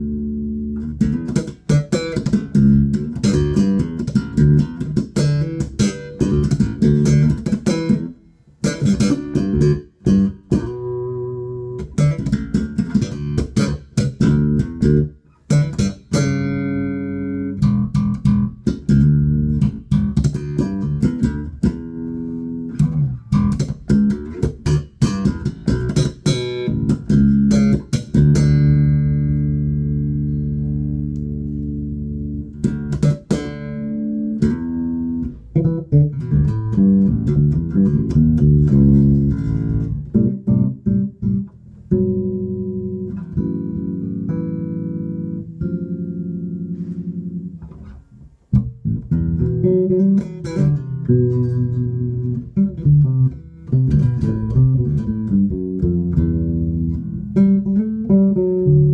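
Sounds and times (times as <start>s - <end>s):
electric bass notes: 0.0s - 58.9s.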